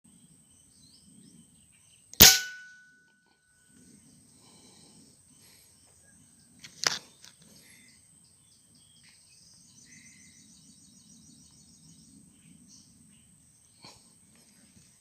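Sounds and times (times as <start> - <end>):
air rifle shot: 2.2 - 2.8.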